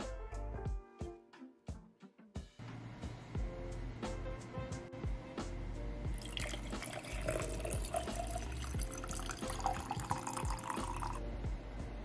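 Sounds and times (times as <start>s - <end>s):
water pouring into jar of ice: 6.2s - 11.2s.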